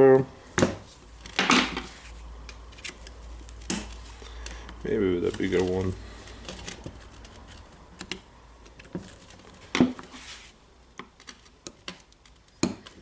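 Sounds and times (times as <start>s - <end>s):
small metal clicks and scrapes: 2.4s - 9.6s.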